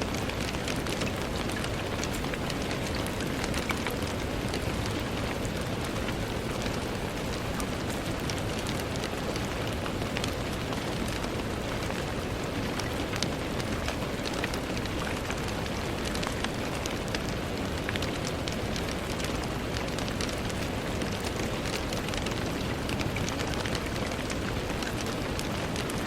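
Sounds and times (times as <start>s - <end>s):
rain on a window: 0.0s - 26.0s.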